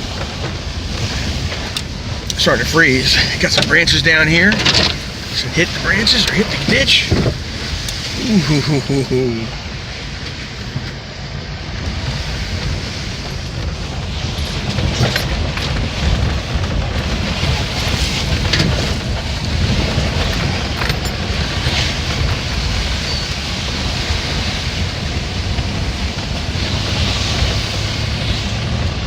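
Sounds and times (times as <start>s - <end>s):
vehicle engine and road rumble: 0.0s - 29.0s
tyres hissing through slush: 5.0s - 9.6s.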